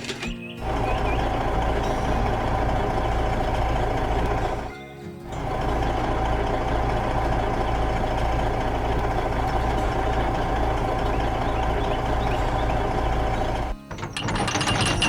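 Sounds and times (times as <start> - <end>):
diesel excavator engine running: 0.0 - 15.0.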